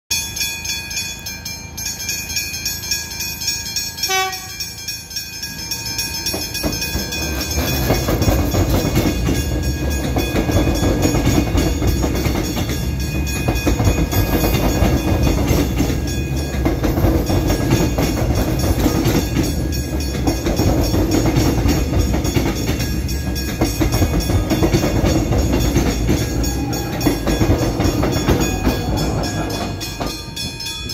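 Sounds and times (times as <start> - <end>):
crossing bells ringing: 0.1 - 30.9
train wheels and motors rumbling: 0.1 - 30.9
train horn blast: 4.0 - 4.7.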